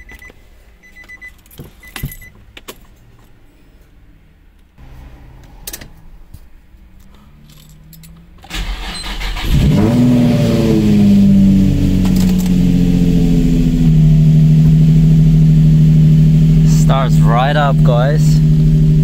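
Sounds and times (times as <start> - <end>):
car engine idling: 4.5 - 19.0
car engine cranking by starter: 7.0 - 19.0.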